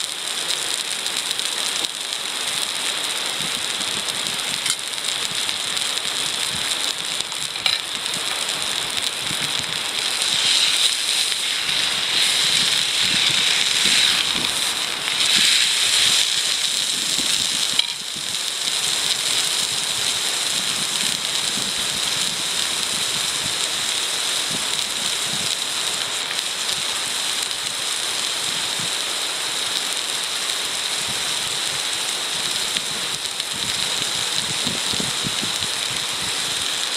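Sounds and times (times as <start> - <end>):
food sizzling in a frying pan: 0.0 - 36.9.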